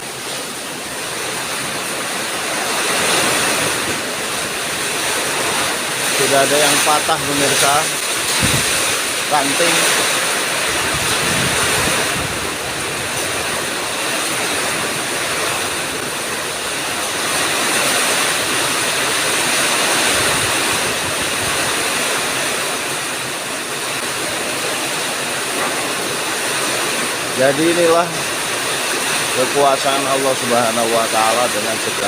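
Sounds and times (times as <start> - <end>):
heavy rain: 0.0 - 32.0
wind gusts buffeting microphone: 2.4 - 23.2.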